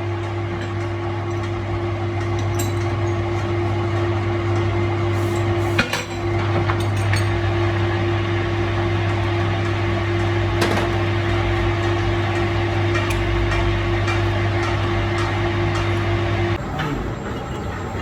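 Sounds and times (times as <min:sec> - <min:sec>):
workshop machine humming: 0:00.0 - 0:18.0
metal clinks and knocks: 0:09.1 - 0:16.6.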